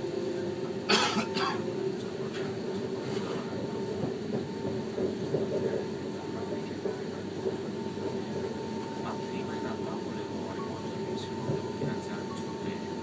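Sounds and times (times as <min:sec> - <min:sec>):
wheels rumbling on rails: 0:01.7 - 0:12.8
thin steady whine: 0:06.2 - 0:13.0.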